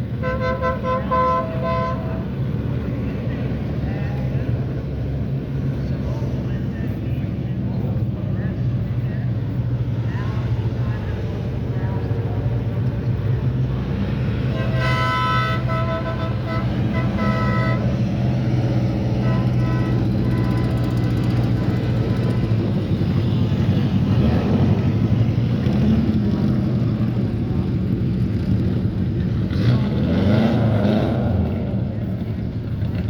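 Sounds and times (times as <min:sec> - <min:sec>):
race car engines rumbling: 0:00.0 - 0:33.0
horn blasts: 0:00.1 - 0:02.5, 0:14.4 - 0:22.8.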